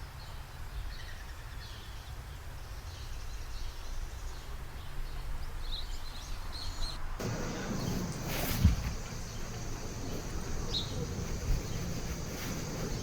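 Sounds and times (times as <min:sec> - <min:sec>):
small birds chirping: 0:07.2 - 0:13.0.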